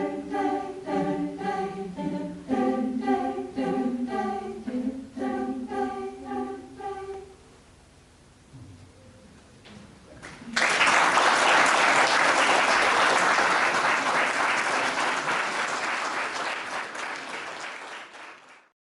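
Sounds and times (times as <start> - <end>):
audience applauding: 10.2 - 18.7.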